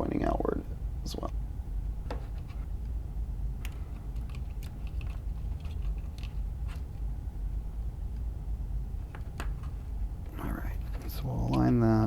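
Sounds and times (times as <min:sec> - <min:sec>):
steady low hum: 0:00.0 - 0:12.0
small fan clicks and taps: 0:03.6 - 0:07.0, 0:09.1 - 0:11.9.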